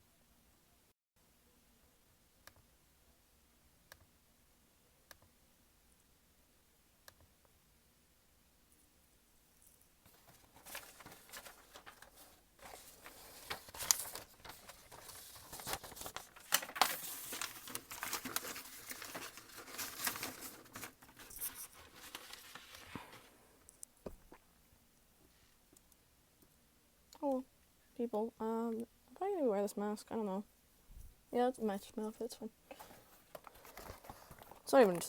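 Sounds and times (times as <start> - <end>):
crinkly material rustling: 9.6 - 23.6, 30.9 - 35.0.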